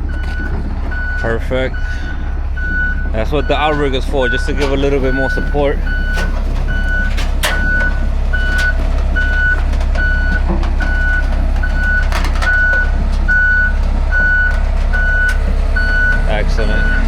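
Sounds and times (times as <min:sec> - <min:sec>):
backup alarm beeping: 0:00.0 - 0:17.0
low diesel engine rumble: 0:00.0 - 0:17.0
metallic clanks: 0:03.6 - 0:13.2.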